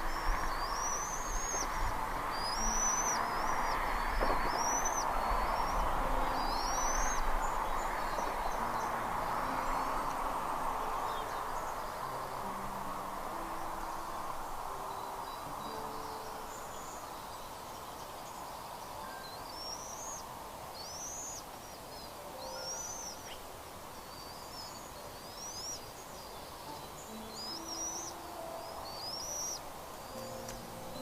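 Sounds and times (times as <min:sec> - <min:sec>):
bird high-pitched calls: 0:00.0 - 0:10.2, 0:19.0 - 0:23.4, 0:24.0 - 0:31.0
wind hiss: 0:00.0 - 0:31.0.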